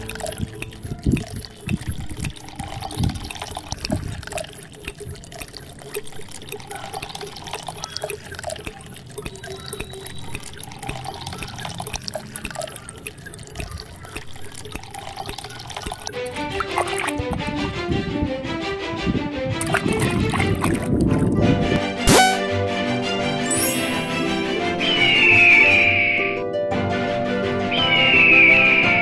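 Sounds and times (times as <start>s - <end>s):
water trickling and dripping: 0.0s - 17.7s, 19.6s - 22.4s, 23.4s - 24.2s.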